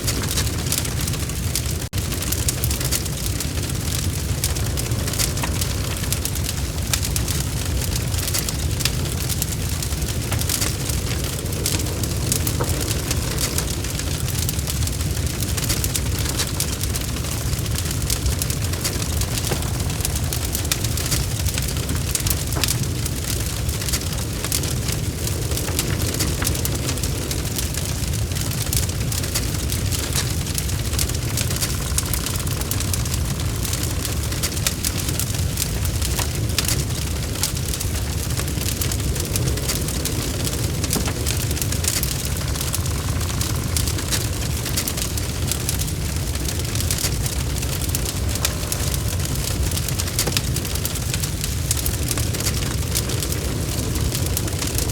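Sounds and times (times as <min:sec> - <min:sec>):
log fire crackling and popping: 0:00.0 - 0:54.9.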